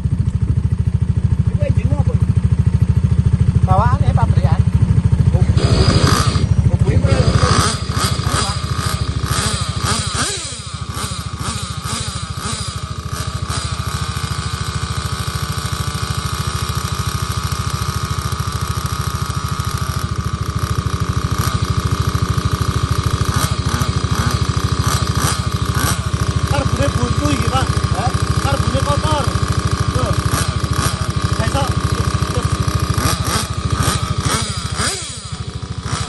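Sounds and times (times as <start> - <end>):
small engine buzzing and revving: 5.3 - 36.0.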